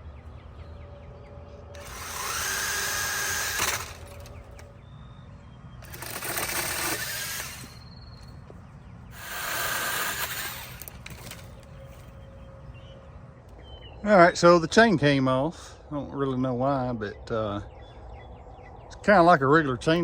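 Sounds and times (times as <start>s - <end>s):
electric chainsaw motor whining: 1.8s - 4.7s, 5.8s - 8.2s, 9.1s - 11.7s.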